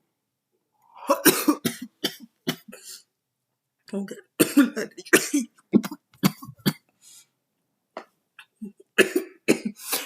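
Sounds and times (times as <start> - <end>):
person coughing hard: 1.0 - 3.0, 4.4 - 6.8, 8.9 - 10.0.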